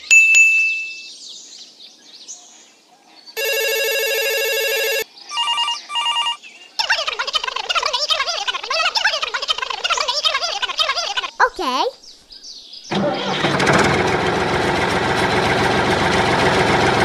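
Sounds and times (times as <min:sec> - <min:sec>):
turkeys gobbling: 0:06.8 - 0:11.6.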